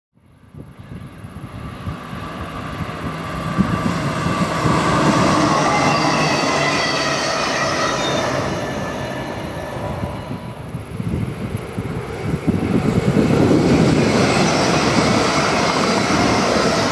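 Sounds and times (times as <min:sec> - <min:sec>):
train rumbling past: 0:00.4 - 0:16.9
multi-tone whine: 0:00.8 - 0:11.5.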